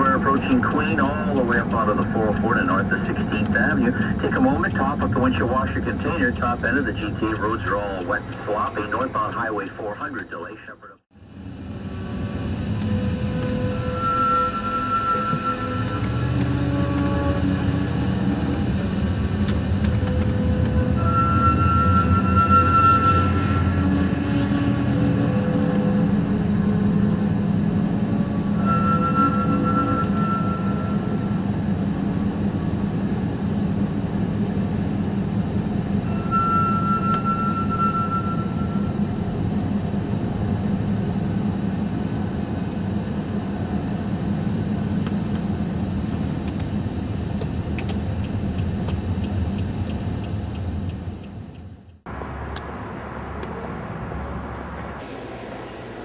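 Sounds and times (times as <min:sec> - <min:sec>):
vehicle rumble from inside: 0:15.1 - 0:55.8.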